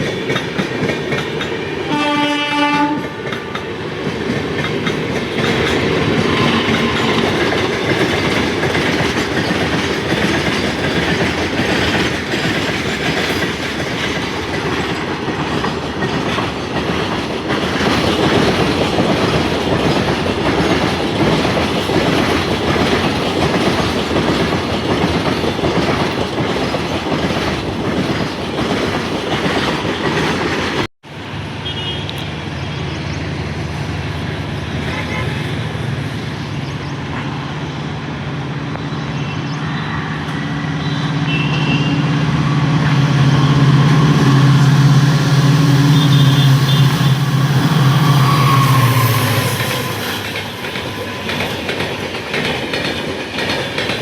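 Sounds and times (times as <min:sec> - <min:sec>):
wheels clacking over rail joints: 0:00.0 - 0:30.9, 0:48.8 - 0:54.0
passing train rumble: 0:00.0 - 0:54.0
train horn: 0:01.8 - 0:03.5, 0:31.6 - 0:32.2, 0:40.8 - 0:51.6.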